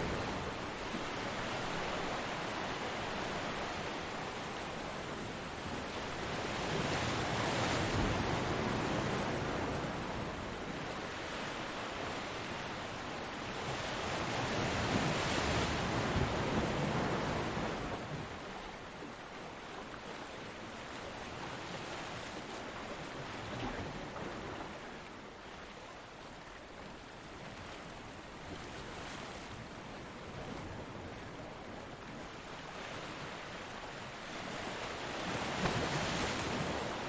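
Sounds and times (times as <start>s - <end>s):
ocean waves breaking: 20.9s - 37.0s.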